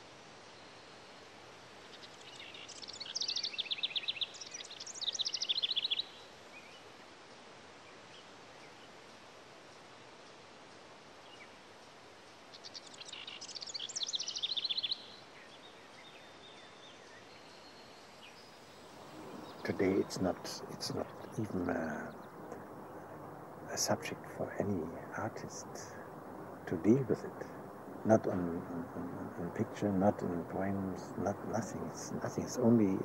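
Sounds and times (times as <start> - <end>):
outdoor background hiss: 0.0 - 33.0
songbird trilling: 2.2 - 6.2, 12.6 - 15.2, 18.2 - 33.0.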